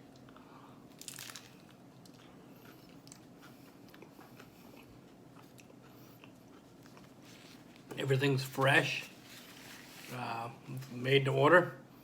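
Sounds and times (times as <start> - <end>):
faint chewing crunches: 0.0 - 10.2
biting crisp shell crunch: 0.9 - 4.5.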